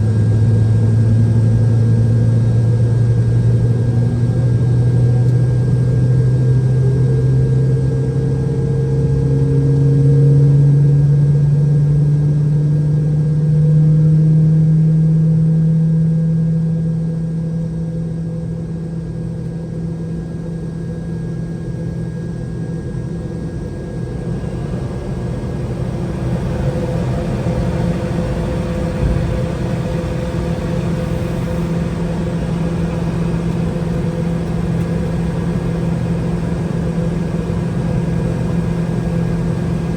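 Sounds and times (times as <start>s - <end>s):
jet engine starting up: 18.4s - 39.9s.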